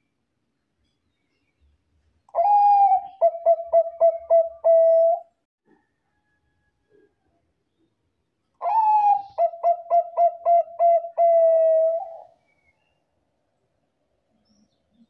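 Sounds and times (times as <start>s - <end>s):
dove cooing: 2.4s - 5.3s, 8.6s - 12.4s.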